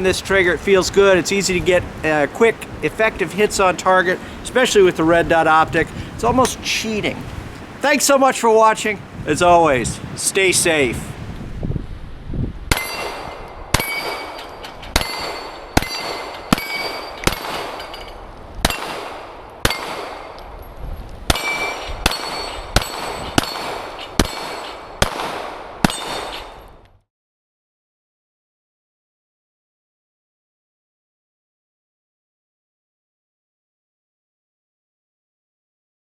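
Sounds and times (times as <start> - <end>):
pistol shots: 12.7 - 17.9, 18.6 - 20.4, 21.3 - 26.6
steel target ringing ping: 12.7 - 18.1.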